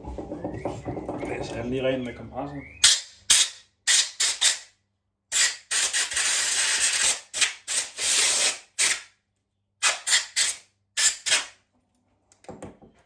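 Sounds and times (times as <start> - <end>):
compressed air hissing bursts: 2.8 - 4.7, 5.4 - 9.1, 9.8 - 11.5.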